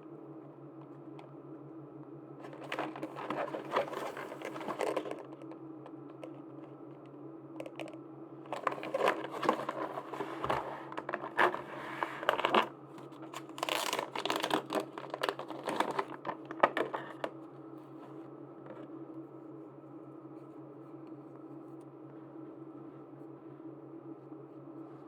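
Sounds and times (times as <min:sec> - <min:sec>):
steady low hum: 0:00.0 - 0:25.0
plastic wrap crinkling: 0:02.4 - 0:05.6, 0:08.5 - 0:17.3.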